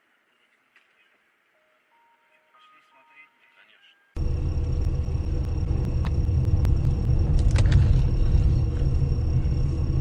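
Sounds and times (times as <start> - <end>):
car road and engine rumble: 4.2 - 10.0.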